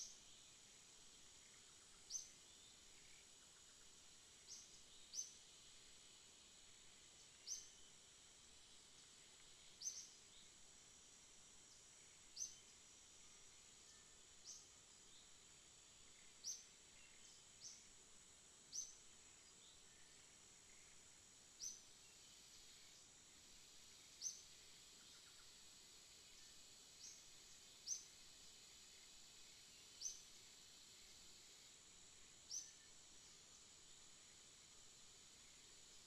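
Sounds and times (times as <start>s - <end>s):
insects hissing: 0.0s - 36.0s
bird chirping: 9.6s - 10.5s, 32.5s - 33.0s.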